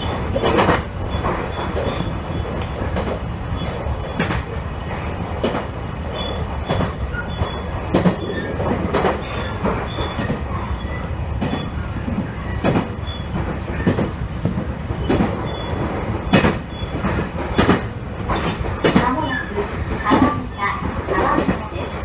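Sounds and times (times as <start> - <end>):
train wheels rumbling on rails: 0.0 - 22.0
faint high wheel squeal: 6.1 - 6.4, 9.2 - 14.1, 15.0 - 21.3
wheels clicking over rail joints: 12.6 - 21.6.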